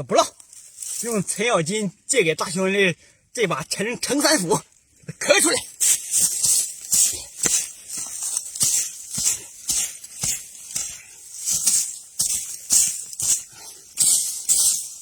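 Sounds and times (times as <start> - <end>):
dirt scattering: 5.3 - 15.0
axe striking stony soil: 5.8 - 15.0.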